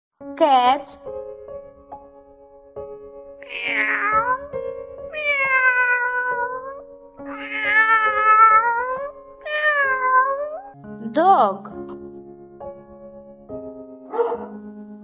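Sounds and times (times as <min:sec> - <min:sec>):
cat meowing: 0:03.4 - 0:04.5, 0:05.1 - 0:10.8.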